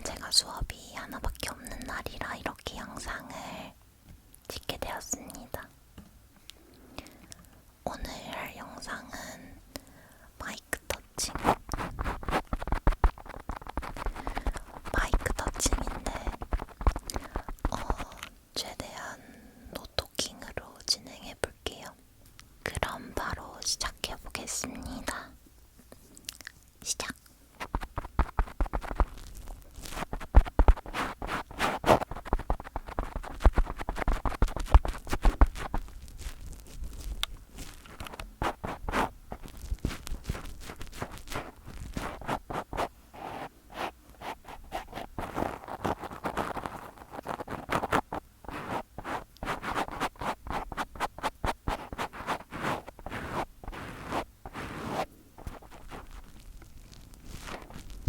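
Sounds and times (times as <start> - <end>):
fingers rubbing on microphone: 10.9 - 18.3, 27.0 - 58.0
fingers tapping on microphone: 11.7 - 18.2, 27.6 - 29.2, 29.8 - 35.9.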